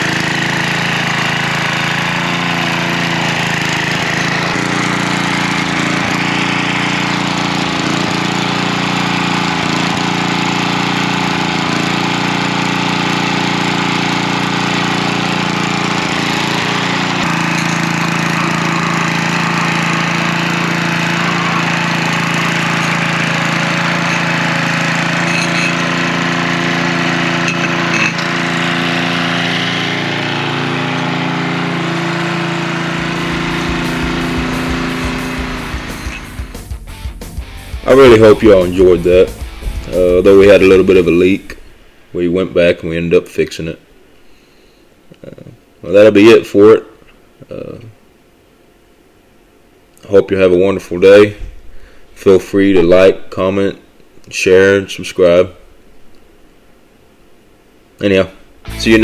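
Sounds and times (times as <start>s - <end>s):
edger engine running: 0.0s - 42.2s.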